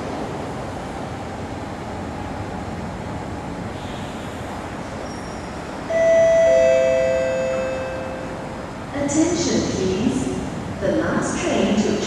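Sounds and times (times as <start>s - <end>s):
train running noise: 0.0s - 12.0s
two-note descending chime: 5.9s - 8.4s.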